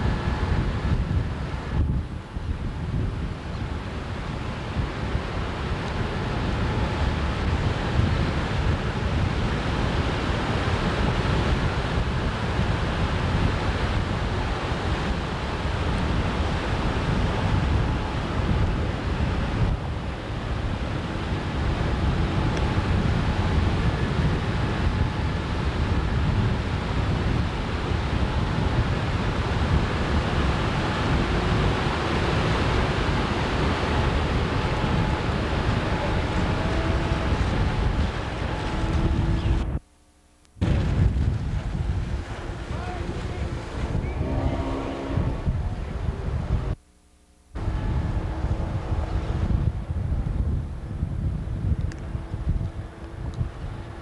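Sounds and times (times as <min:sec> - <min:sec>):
wind buffeting microphone: 0:00.0 - 0:39.8, 0:40.6 - 0:46.8, 0:47.6 - 0:54.0
rushing water: 0:03.6 - 0:39.7, 0:40.6 - 0:46.7.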